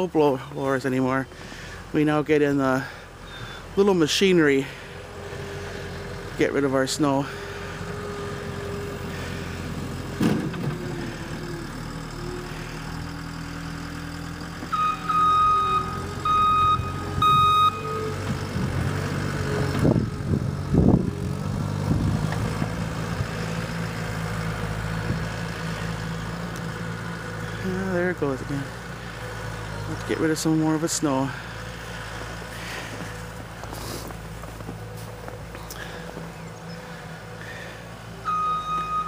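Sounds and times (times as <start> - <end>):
snow-clearing machine engine: 0.0 - 39.0
backup alarm beeping: 14.7 - 18.2, 38.2 - 39.0.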